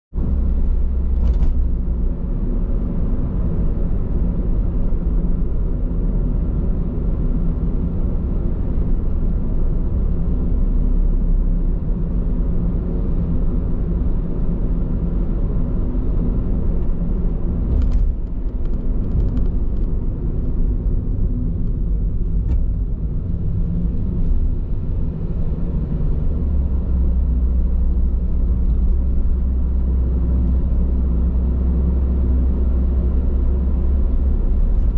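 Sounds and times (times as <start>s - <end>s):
car road and tyre rumble: 0.1s - 34.9s.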